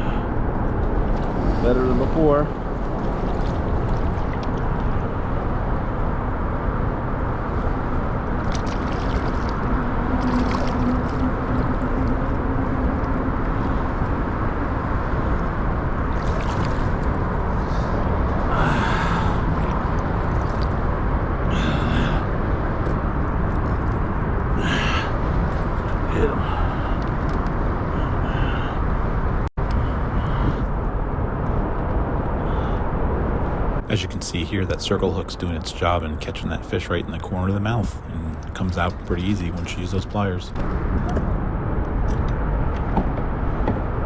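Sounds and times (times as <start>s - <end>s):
wind buffeting microphone: 0.0s - 33.9s
faint steady hum: 0.0s - 44.0s.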